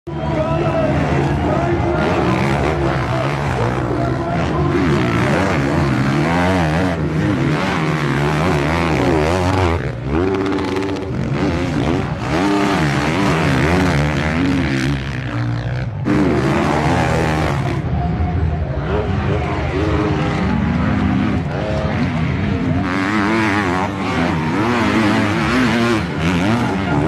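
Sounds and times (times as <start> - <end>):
motocross bike engines revving: 0.1 - 27.0.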